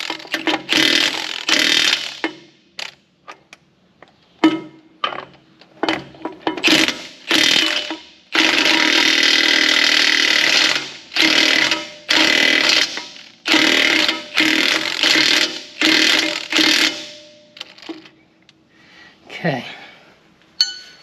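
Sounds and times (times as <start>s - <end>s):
impact wrench rattling: 0.0s - 3.0s, 4.4s - 18.2s.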